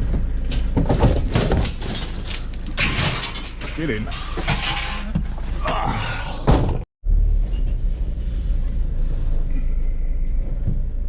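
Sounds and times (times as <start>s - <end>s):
van driving along road: 7.0s - 11.0s.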